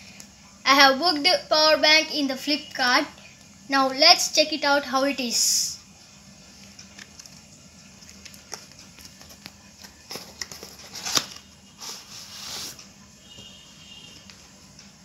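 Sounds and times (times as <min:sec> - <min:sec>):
packaging clicks and taps: 0:06.7 - 0:11.4
packaging rustle: 0:06.7 - 0:12.8.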